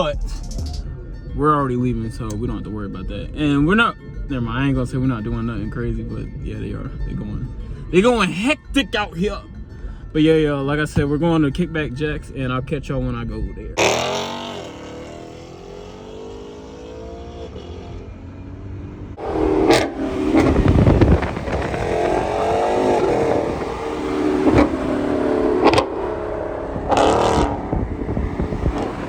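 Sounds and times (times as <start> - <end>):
car engine revving hard: 13.8 - 29.0.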